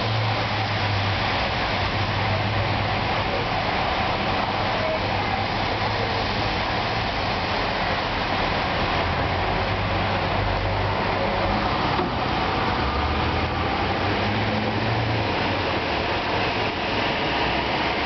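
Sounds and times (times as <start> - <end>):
torrential rain pouring: 0.0 - 18.0.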